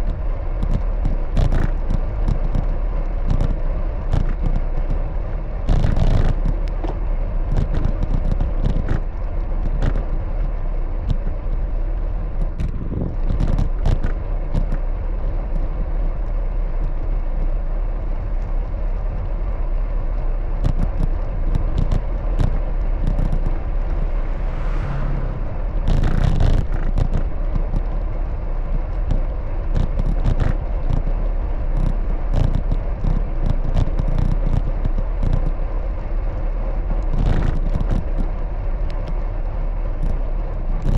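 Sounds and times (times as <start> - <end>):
road and traffic noise: 0.0 - 40.9
wind rumbling on microphone: 0.0 - 40.9
high rising whine: 20.8 - 28.8.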